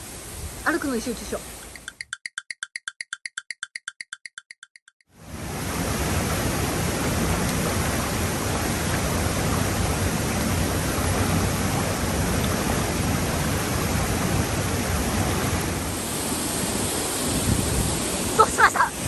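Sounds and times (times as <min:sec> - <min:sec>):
waterfall roaring: 0:05.2 - 0:19.0.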